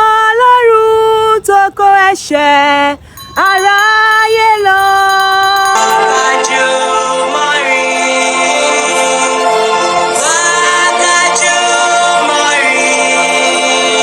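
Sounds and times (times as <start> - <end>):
a cappella choir singing chords: 5.6 - 14.0.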